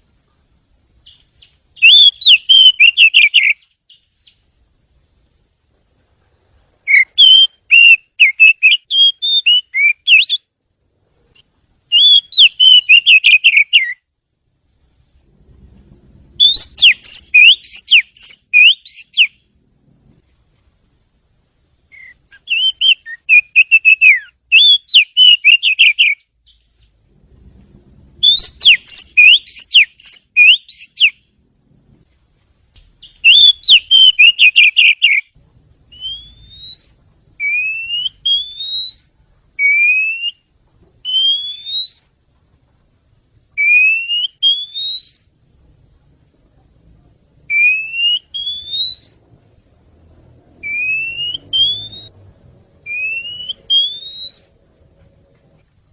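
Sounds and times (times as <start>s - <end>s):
bird clear rising whistles: 1.1s - 4.4s, 6.9s - 10.5s, 11.9s - 14.0s, 16.3s - 19.4s, 21.9s - 27.0s, 28.2s - 31.2s, 33.0s - 35.3s, 35.9s - 42.1s, 43.6s - 45.3s, 47.5s - 49.2s, 50.6s - 52.2s, 52.9s - 54.5s.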